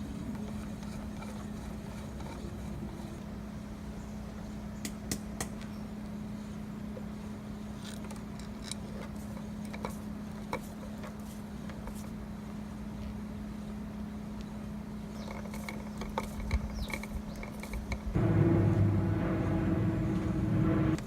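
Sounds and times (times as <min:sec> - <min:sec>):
light clicks of engine parts: 0:07.7 - 0:12.2, 0:14.4 - 0:18.2
steady hum: 0:08.8 - 0:21.0.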